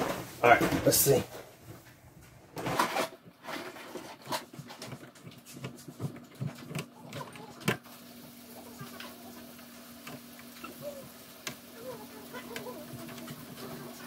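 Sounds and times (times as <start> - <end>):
plastic pipe scraping: 2.6 - 7.8.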